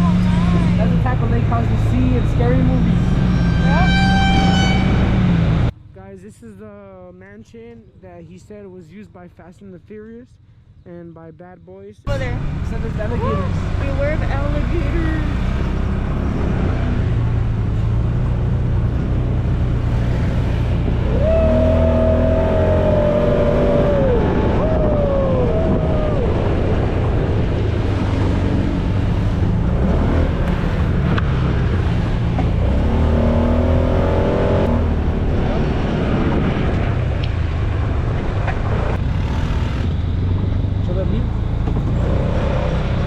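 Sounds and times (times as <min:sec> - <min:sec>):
vehicle engine driving: 0:00.0 - 0:05.9, 0:12.1 - 0:43.0
high engine whine: 0:12.1 - 0:43.0.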